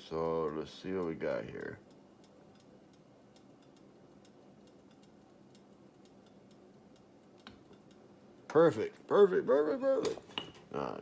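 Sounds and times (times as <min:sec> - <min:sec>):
light ticks: 0:00.0 - 0:08.6
faint steady hum: 0:00.0 - 0:11.0.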